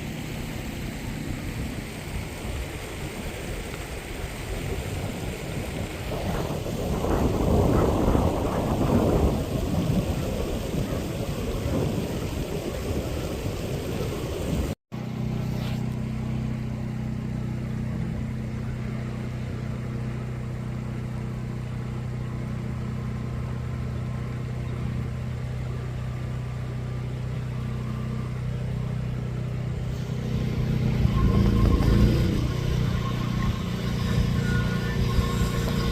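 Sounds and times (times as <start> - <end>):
steady engine hum: 0.0 - 35.9
rough noise: 29.8 - 35.9.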